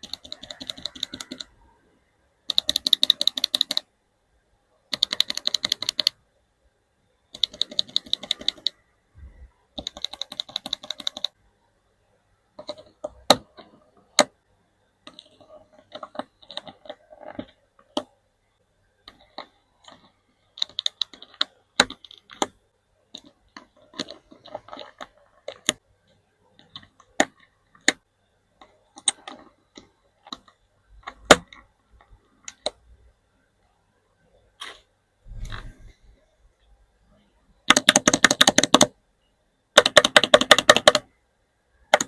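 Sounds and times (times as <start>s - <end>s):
mechanical keyboard typing: 0.0s - 1.6s, 2.4s - 3.9s, 4.9s - 6.2s, 7.3s - 8.8s, 9.7s - 11.4s, 12.6s - 14.4s, 15.0s - 18.2s, 19.0s - 25.8s, 26.6s - 31.6s, 37.6s - 39.0s, 39.7s - 41.1s.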